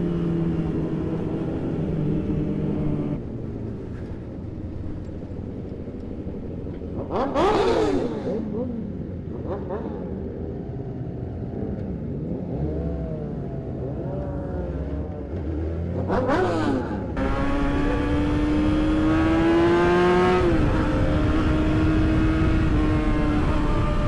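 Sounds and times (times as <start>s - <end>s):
motorcycle engines revving: 0.0s - 24.0s
wind noise: 17.2s - 24.0s.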